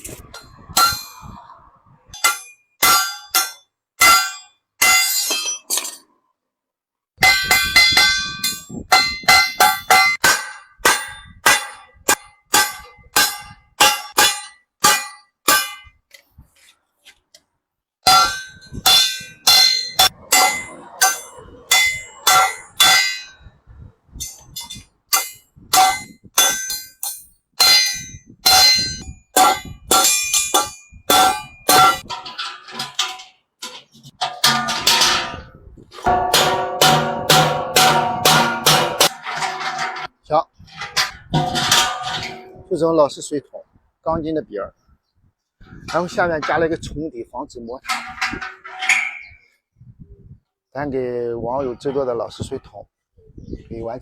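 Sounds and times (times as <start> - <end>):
hammer clanging on sheet metal: 7.2 - 15.9, 18.1 - 23.3, 24.5 - 40.1.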